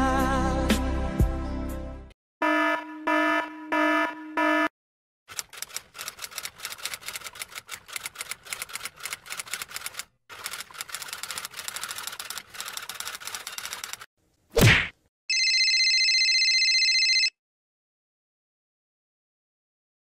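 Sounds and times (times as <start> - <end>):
alarm beeping: 2.4 - 4.7
typewriter keys clattering: 5.3 - 14.1.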